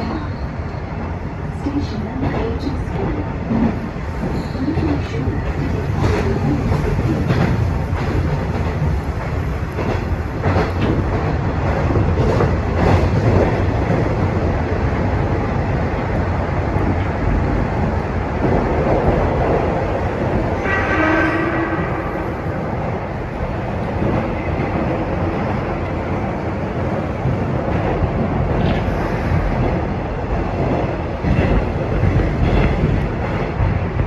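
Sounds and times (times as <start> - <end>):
train wheels rumbling: 0.0 - 34.0.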